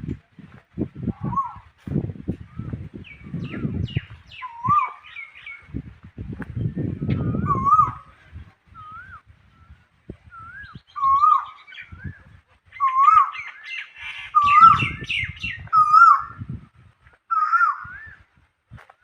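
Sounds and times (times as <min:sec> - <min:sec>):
bird whistled calls: 0:02.5 - 0:05.7, 0:06.8 - 0:08.1, 0:10.3 - 0:16.3.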